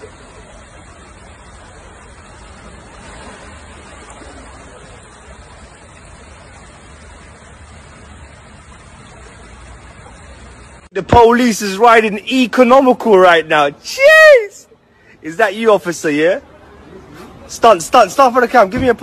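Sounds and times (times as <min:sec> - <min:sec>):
car road noise rumble: 0:00.0 - 0:11.3.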